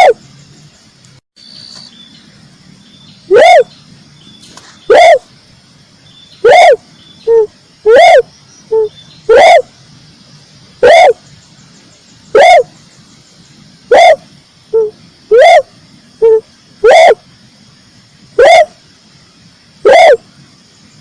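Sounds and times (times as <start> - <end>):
dove cooing: 3.3 - 3.7, 4.9 - 5.3, 6.4 - 9.7, 10.8 - 11.2, 12.3 - 12.7, 13.9 - 17.2, 18.4 - 18.8, 19.8 - 20.2.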